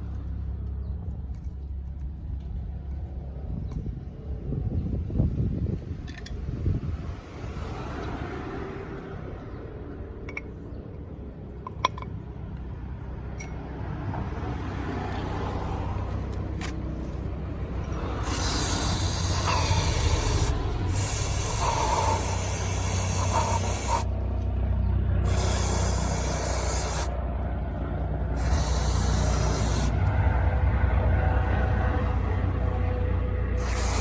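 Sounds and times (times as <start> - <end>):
spray hissing: 18.2 - 24.1, 25.2 - 27.2, 28.4 - 30.0, 33.6 - 34.0.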